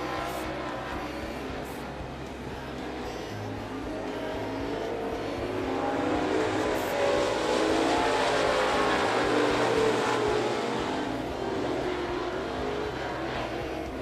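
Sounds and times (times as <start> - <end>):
race car engines running: 0.0 - 14.0.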